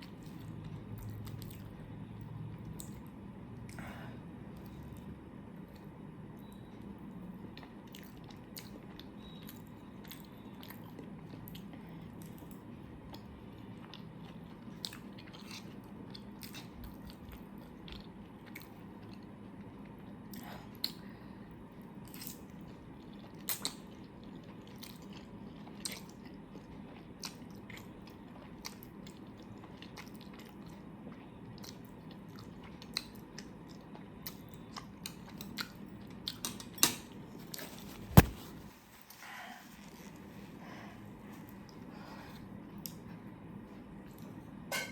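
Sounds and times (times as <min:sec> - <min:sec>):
chewing with wet mouth clicks: 0:00.0 - 0:03.8, 0:07.5 - 0:21.1, 0:22.0 - 0:36.8
low room hum: 0:00.0 - 0:44.9.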